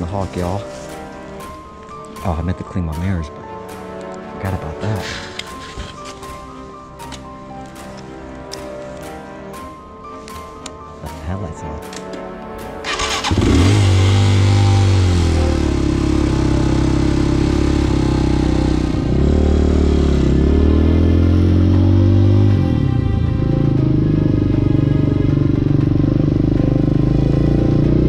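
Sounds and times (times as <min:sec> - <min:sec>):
motorcycle engine revving and idling: 0:12.9 - 0:28.0.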